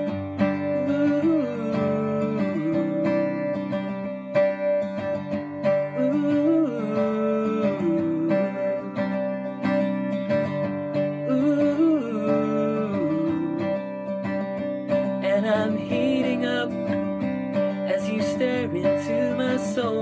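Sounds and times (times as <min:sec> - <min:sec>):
strummed acoustic guitar: 0:00.0 - 0:20.0.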